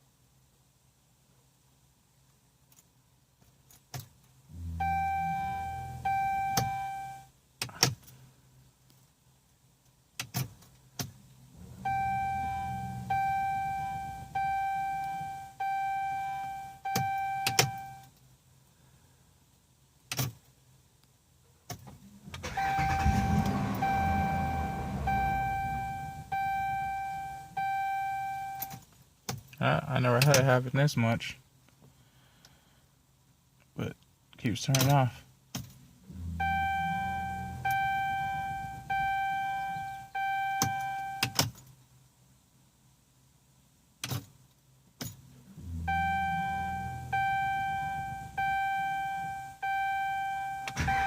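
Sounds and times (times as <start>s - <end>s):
car engine starting and running: 4.4s - 7.9s, 10.2s - 18.0s, 21.7s - 28.8s, 35.6s - 41.5s, 45.0s - 51.0s
dashboard warning chime: 4.6s - 7.3s, 11.8s - 18.1s, 22.4s - 28.8s, 36.1s - 41.4s, 45.5s - 51.0s.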